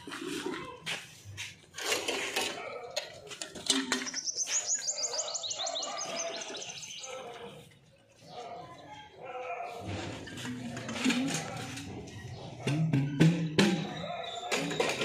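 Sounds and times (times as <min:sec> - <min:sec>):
knocks and handling clatter: 0:01.5 - 0:04.4, 0:09.8 - 0:15.0
bird trilling: 0:03.9 - 0:07.2.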